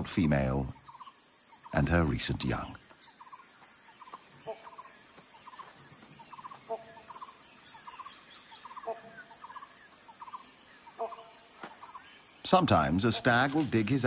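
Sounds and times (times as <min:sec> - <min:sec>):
lower bird call: 0:02.7 - 0:12.5.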